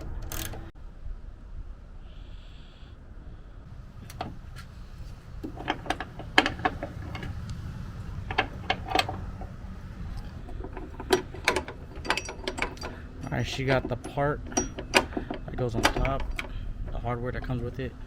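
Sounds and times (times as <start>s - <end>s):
metal hardware and tools clicking: 0.0s - 0.7s, 5.4s - 17.9s
low rumble: 0.0s - 18.0s.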